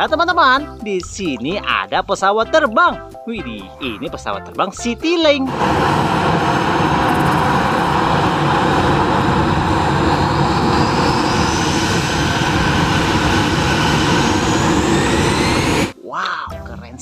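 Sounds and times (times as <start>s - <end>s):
jet engine roar with rising whine: 5.5s - 16.0s.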